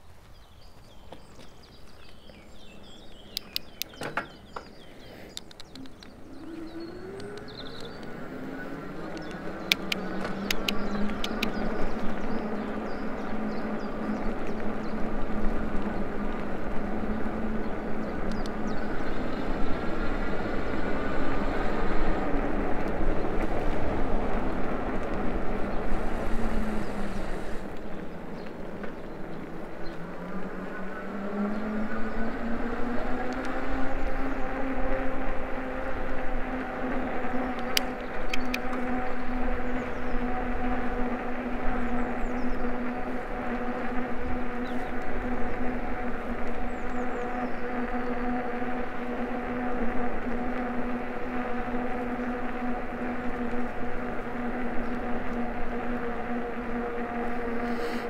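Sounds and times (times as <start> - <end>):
electric bike motor whine: 1.4 - 58.0
sharp clicks: 3.3 - 4.2, 5.2 - 8.2, 9.1 - 11.8, 37.6 - 38.9.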